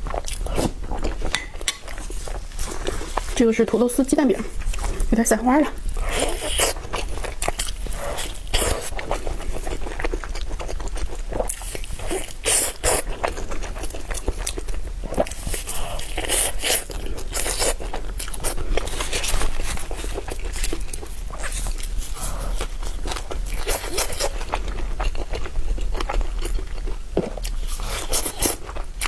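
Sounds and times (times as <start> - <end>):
crunchy chewing and bites: 5.9 - 29.0.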